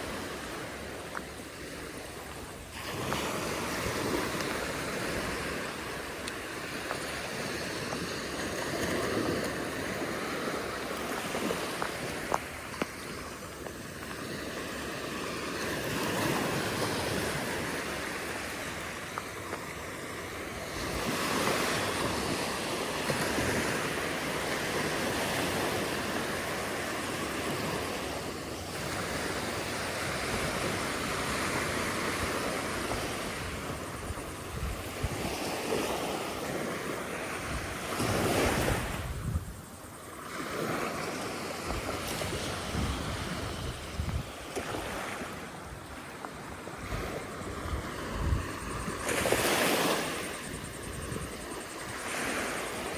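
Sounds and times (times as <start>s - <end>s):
waves breaking on beach: 0.0s - 52.9s
wind on microphone: 20.2s - 52.9s.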